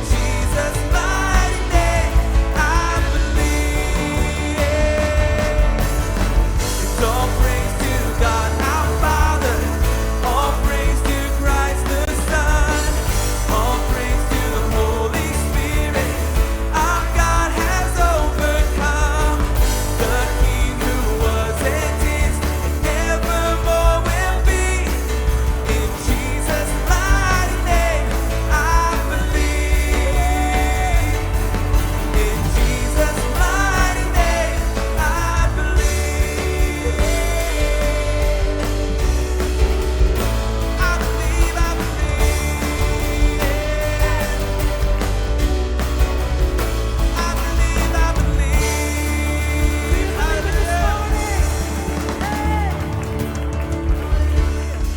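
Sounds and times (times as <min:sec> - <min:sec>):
drum beat: 0:00.0 - 0:54.9
rock-pop band playing: 0:00.0 - 0:54.9
voices singing: 0:00.0 - 0:54.9.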